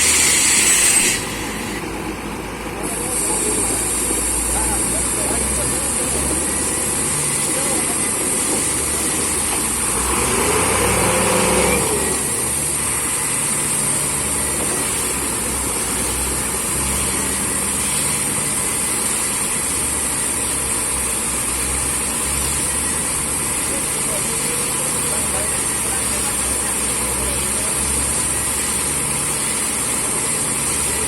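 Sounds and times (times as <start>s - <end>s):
drilling rig engine and compressor: 0.0s - 31.0s.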